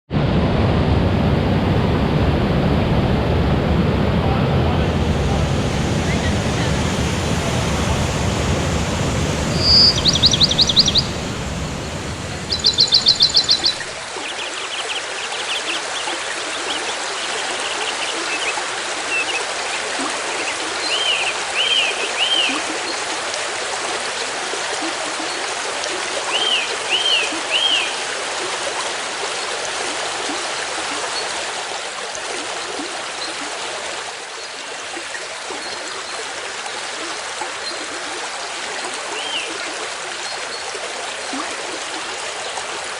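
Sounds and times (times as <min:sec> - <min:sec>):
low rumble: 0:00.1 - 0:14.0
stream running: 0:01.3 - 0:42.9
bird whistled notes: 0:07.5 - 0:13.9
bird trills: 0:09.4 - 0:13.9.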